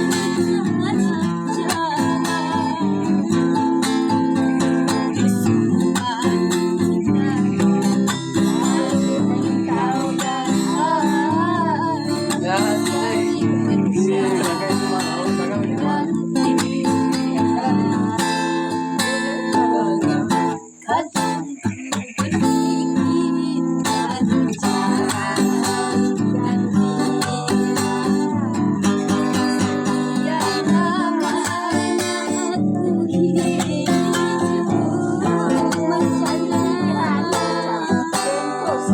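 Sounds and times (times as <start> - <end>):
person singing: 0.0 - 38.9
strummed acoustic guitar: 0.0 - 38.9.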